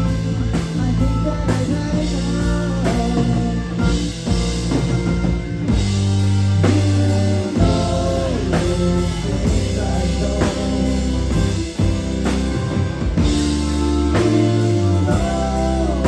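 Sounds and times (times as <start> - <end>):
sustained low bass notes: 0.0 - 16.0
drum kit hits: 1.8 - 16.0.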